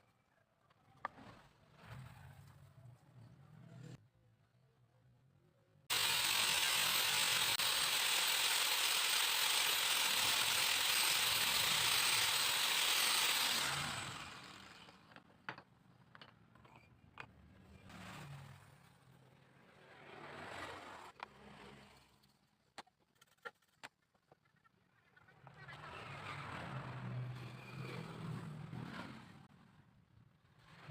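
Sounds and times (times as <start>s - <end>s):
power tool running: 5.9s - 15.2s.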